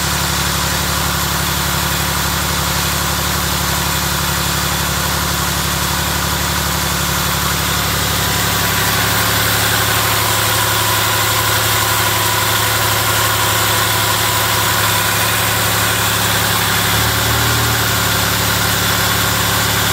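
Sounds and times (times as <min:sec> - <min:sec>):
car engine idling: 0:00.0 - 0:19.9.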